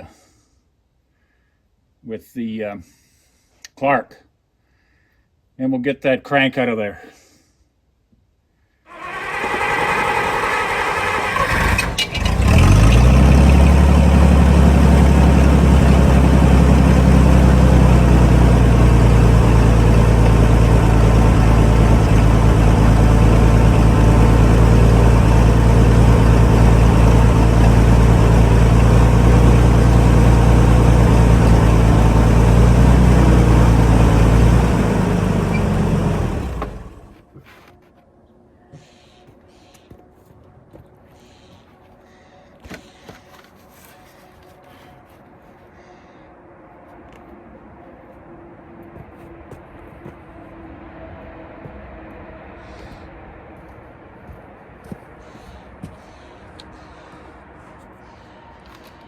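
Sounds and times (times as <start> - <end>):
forklift engine cranking and running: 8.9 - 37.2.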